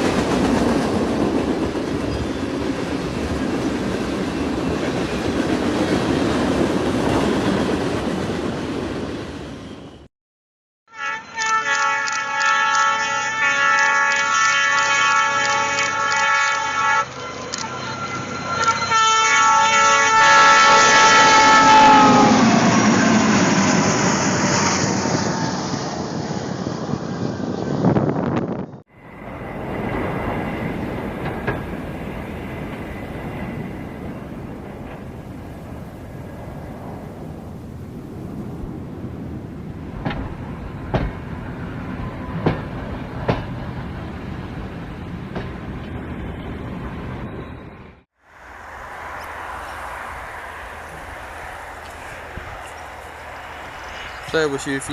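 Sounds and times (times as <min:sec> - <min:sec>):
passing train rushing: 0:00.0 - 0:10.1, 0:10.9 - 0:54.9
train horn chord: 0:10.9 - 0:23.2.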